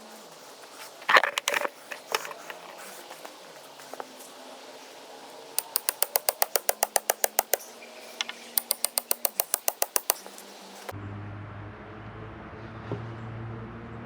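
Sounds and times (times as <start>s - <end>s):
rapid mechanical hammering: 5.6s - 7.8s, 8.5s - 10.9s.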